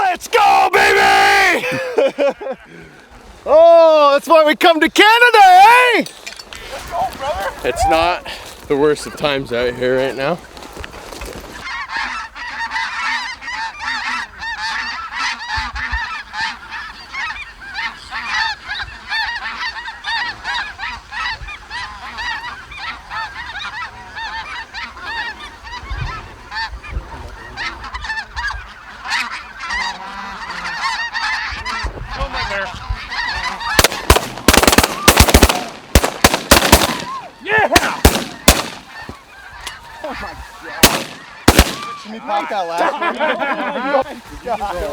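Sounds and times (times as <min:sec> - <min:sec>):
geese honking: 0:11.6 - 0:44.9
shotgun blasts: 0:33.8 - 0:39.0, 0:40.8 - 0:42.0.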